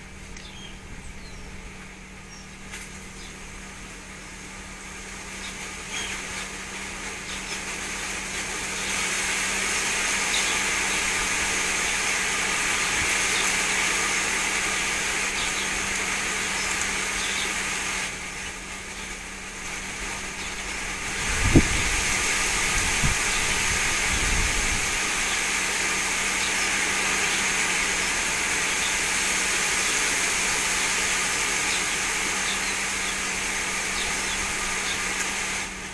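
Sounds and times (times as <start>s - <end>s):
wind rushing over microphone: 20.9s - 25.0s.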